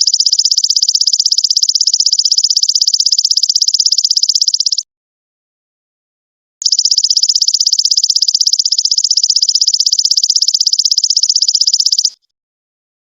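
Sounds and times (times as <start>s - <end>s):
insect buzzing song: 0.0s - 4.8s, 6.6s - 12.2s.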